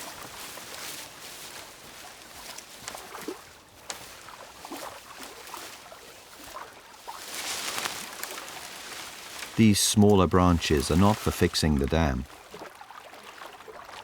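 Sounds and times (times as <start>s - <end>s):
water sloshing and splashing: 0.0s - 9.6s, 10.4s - 14.0s.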